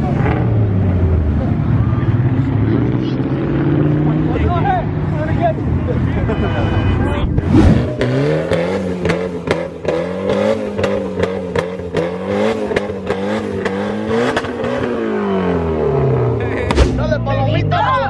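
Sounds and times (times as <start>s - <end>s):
car engine revving: 7.4s - 17.4s.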